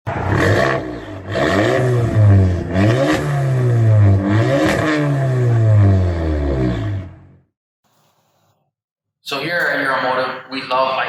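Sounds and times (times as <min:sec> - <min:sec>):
car engine revving: 0:00.1 - 0:07.5.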